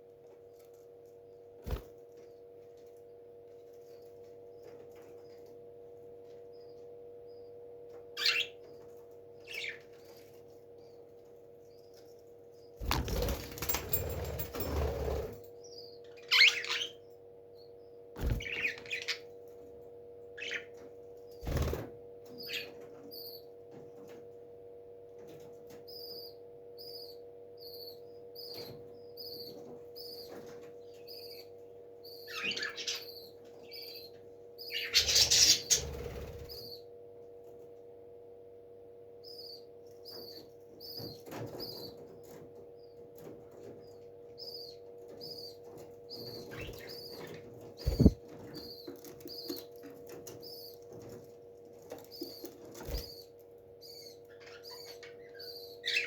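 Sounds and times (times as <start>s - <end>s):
parrot wings flapping: 12.8s - 15.3s, 47.8s - 48.2s
steady hum: 44.5s - 48.6s.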